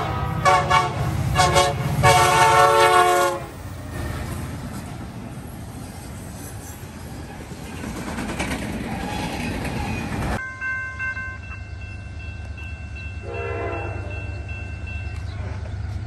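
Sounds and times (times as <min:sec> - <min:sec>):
locomotive horn: 0:00.0 - 0:03.6, 0:13.2 - 0:14.5
freight train wheels clattering: 0:00.5 - 0:10.4.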